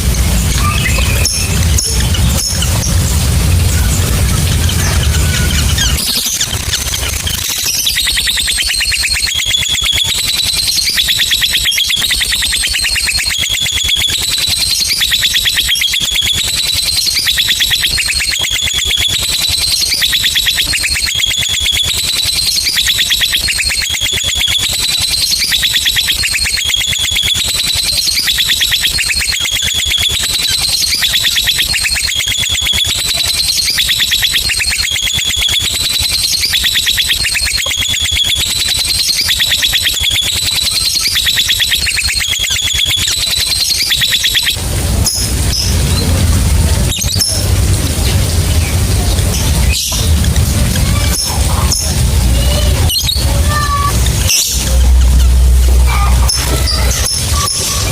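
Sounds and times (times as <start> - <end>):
bird trilling: 0.0 - 57.9.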